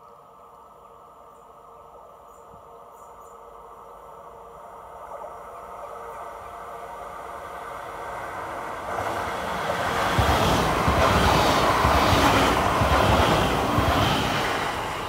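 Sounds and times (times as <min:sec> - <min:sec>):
train passing on rails: 0:03.4 - 0:15.0.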